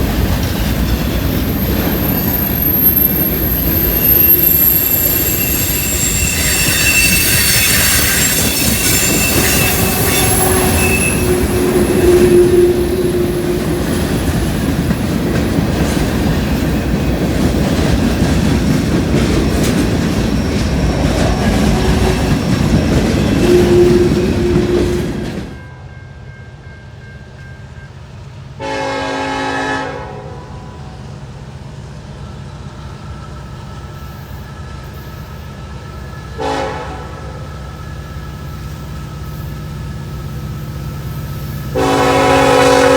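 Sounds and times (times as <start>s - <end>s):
train wheels squealing: 0.0s - 25.6s, 32.1s - 36.4s, 37.2s - 41.8s
train clickety-clack over joints: 0.0s - 30.2s, 31.1s - 42.9s
train horn blast: 8.8s - 14.2s, 23.4s - 26.0s, 28.6s - 31.0s, 36.4s - 37.5s, 41.7s - 42.9s.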